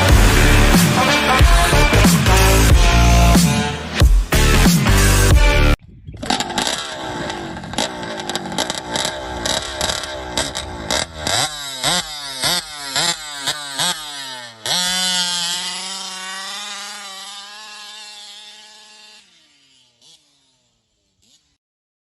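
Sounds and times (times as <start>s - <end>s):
engine revving: 0.0s - 21.6s.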